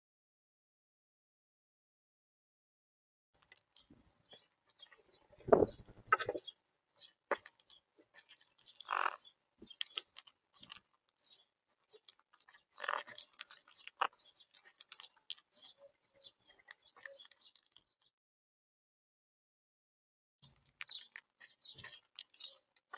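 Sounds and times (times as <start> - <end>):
parrots cracking seeds: 9.7 - 15.8.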